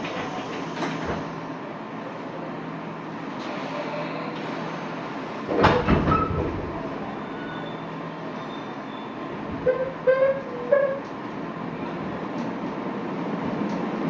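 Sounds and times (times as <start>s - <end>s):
loud train clatter: 0.0s - 1.8s, 3.3s - 14.0s
train rumbling in tunnel: 0.0s - 14.0s.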